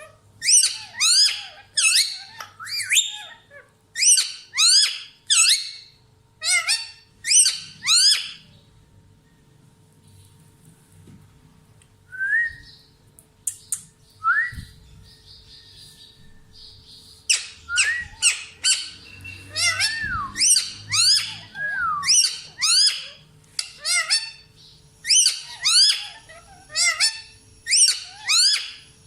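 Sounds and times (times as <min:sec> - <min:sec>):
parrot chirps: 0:00.0 - 0:08.6, 0:17.2 - 0:29.0
parrots squawking: 0:00.0 - 0:08.6, 0:17.3 - 0:29.0.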